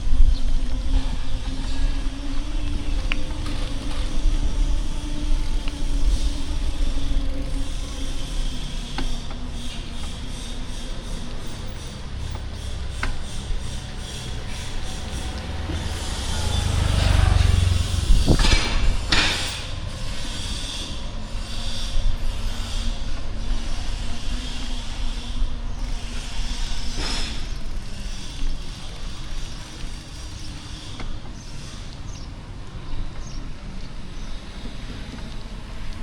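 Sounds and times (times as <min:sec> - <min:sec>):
street traffic: 0:00.0 - 0:36.0
motor vehicle passing close: 0:09.9 - 0:21.0.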